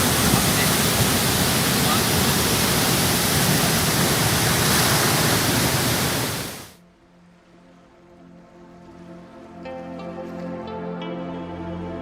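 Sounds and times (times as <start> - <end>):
waterfall rushing: 0.0 - 6.8
soft music with held notes: 6.8 - 12.0.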